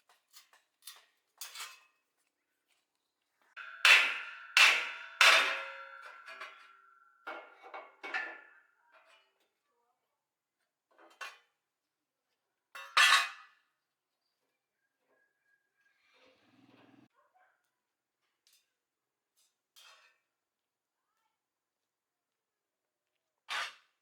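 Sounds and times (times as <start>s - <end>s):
metal clanking on metal: 3.6s - 8.5s.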